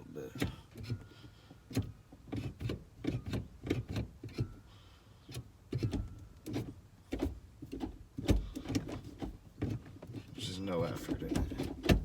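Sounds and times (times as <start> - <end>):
gear shifter clicking: 0.2 - 1.1, 5.3 - 12.0.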